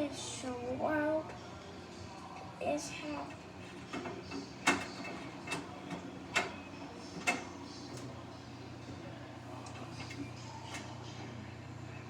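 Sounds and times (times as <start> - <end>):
washing machine motor hum: 0.0 - 12.0
washing machine clicks and knocks: 3.2 - 8.2.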